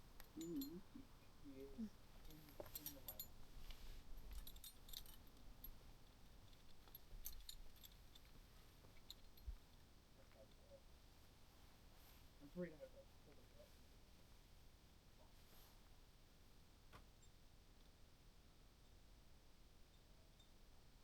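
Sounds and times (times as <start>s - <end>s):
carabiners clinking together: 0.2s - 1.0s, 2.2s - 3.4s, 4.2s - 5.5s, 6.5s - 8.3s.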